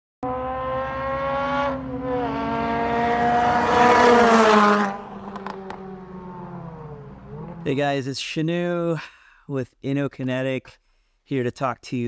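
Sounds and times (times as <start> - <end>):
car engine revving hard: 0.2 - 7.7.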